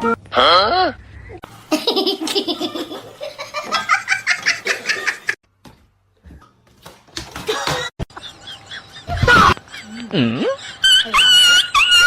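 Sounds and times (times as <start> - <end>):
laughter in pulsing bursts: 8.0 - 12.0.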